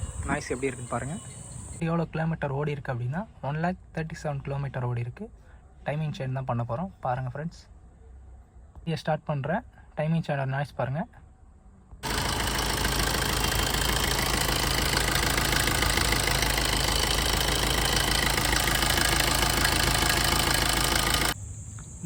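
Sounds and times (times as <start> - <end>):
car engine idling: 12.0 - 21.4.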